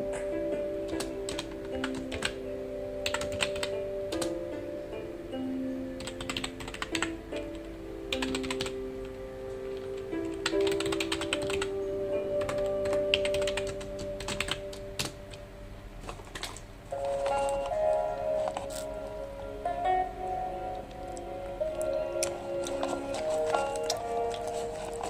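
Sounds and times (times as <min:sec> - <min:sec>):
soft background music: 0:00.0 - 0:25.0
typing on computer keyboard: 0:00.9 - 0:02.4, 0:03.0 - 0:04.3, 0:06.0 - 0:08.8, 0:09.7 - 0:11.8, 0:12.4 - 0:15.2.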